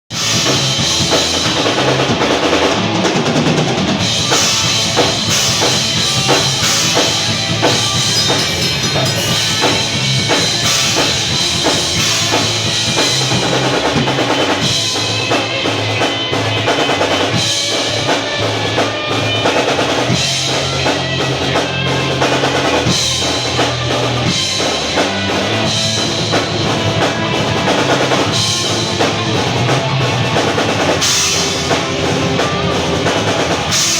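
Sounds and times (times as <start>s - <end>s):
drum kit: 0.1s - 33.9s
metal band playing: 0.1s - 33.9s.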